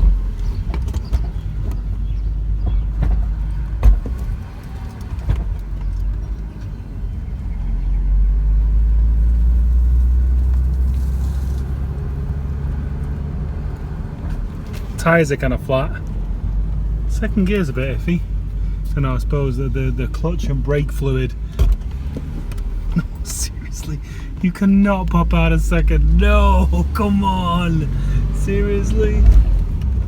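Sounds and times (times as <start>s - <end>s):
car engine deep rumble: 0.0s - 30.0s.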